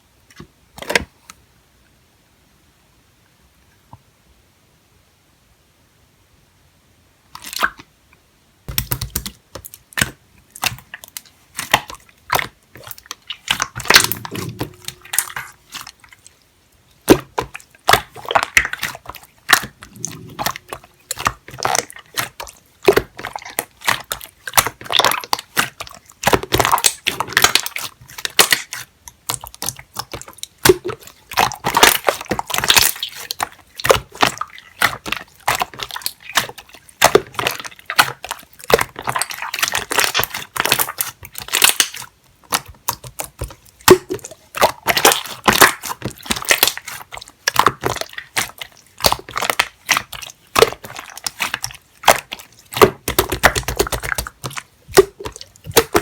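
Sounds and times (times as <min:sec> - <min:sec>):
wet clicks and pops: 0:08.7 - 0:15.4, 0:17.1 - 0:56.0
slime squished by hand: 0:08.7 - 0:16.4, 0:17.0 - 0:56.0.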